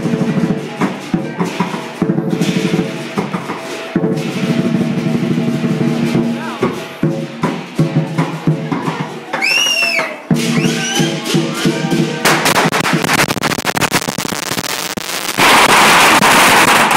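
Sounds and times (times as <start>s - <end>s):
clashing cymbals: 0.0s - 9.2s
drum beaten in fast rolls: 0.0s - 16.9s.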